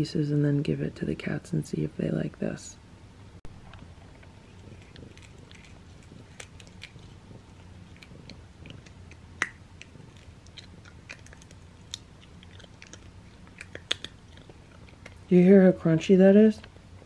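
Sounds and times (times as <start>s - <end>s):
cat crunching treat: 4.1s - 15.3s.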